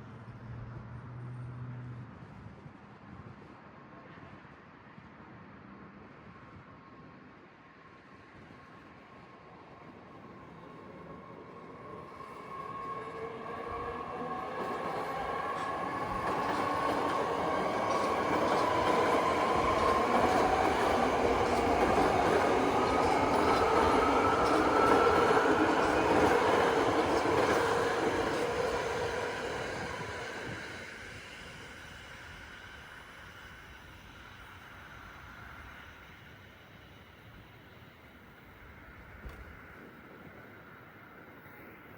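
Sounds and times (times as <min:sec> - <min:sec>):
electric train passing: 0:09.4 - 0:41.9.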